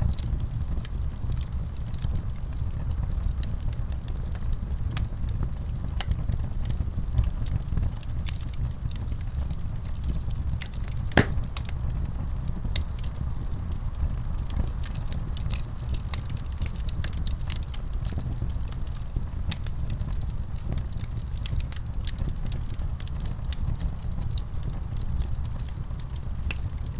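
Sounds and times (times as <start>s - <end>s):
wood fire crackling and popping: 11.2s - 11.7s.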